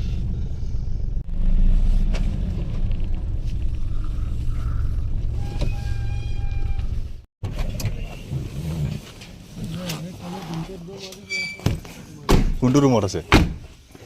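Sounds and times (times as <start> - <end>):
car engine and road noise: 0.0 - 11.2.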